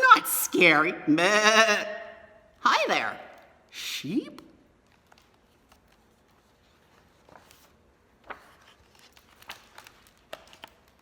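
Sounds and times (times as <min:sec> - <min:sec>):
light paper rustles: 0:04.7 - 0:11.0
book handling clicks: 0:07.3 - 0:11.0.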